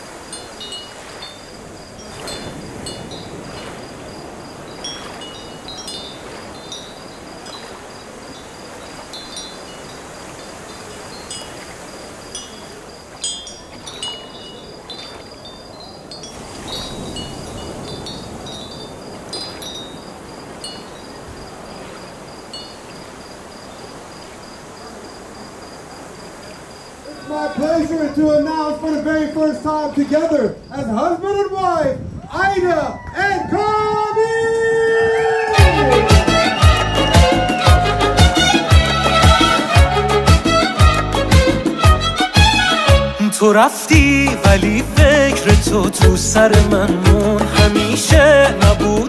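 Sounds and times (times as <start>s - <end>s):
wind hiss: 0.0s - 42.6s
metallic chimes tinkling: 0.2s - 21.3s.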